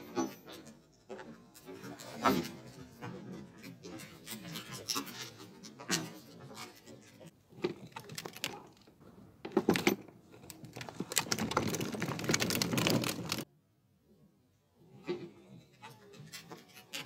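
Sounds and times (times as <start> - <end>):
grit crackling and clicking: 7.8 - 9.0, 10.3 - 13.5
plastic wheel rolling over concrete: 9.5 - 13.5.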